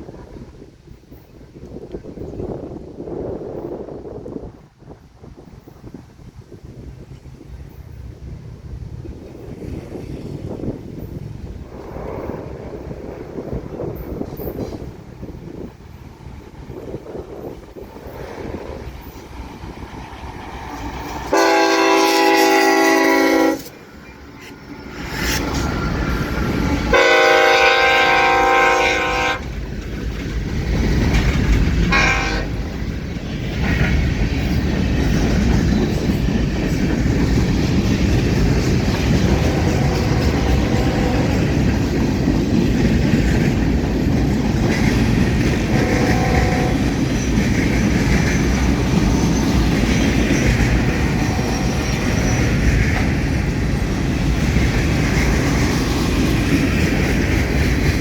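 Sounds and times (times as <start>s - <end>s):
freight train rumbling past: 0.0s - 58.0s
train wheels clattering over crossing: 5.4s - 58.0s
locomotive horn blasts: 21.3s - 23.8s, 26.9s - 29.5s, 31.9s - 32.6s, 39.4s - 41.4s, 45.7s - 46.9s, 51.1s - 52.1s.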